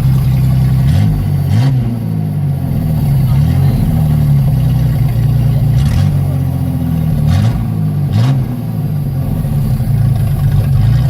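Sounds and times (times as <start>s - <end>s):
loud truck engine running: 0.0s - 11.0s.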